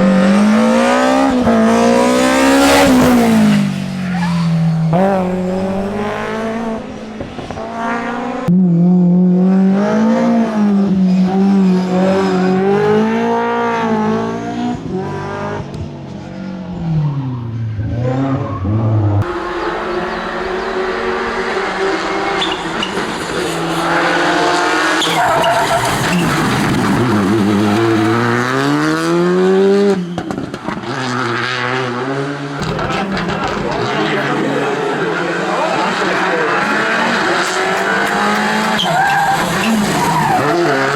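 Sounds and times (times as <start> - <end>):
rally car engines revving: 0.0 - 40.9
tyre squeal: 18.3 - 27.2, 38.6 - 40.9.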